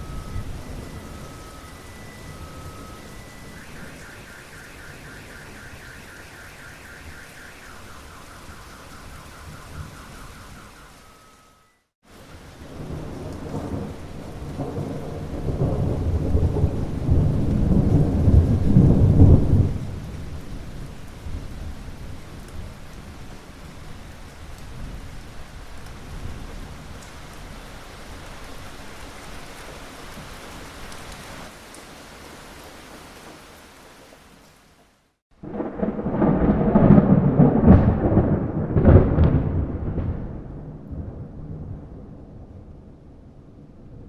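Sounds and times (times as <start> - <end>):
rolling thunder rumble: 0.0 - 11.4, 12.1 - 28.4, 35.4 - 44.0
high pulsing tones: 0.0 - 11.9
steady rain: 0.0 - 44.0.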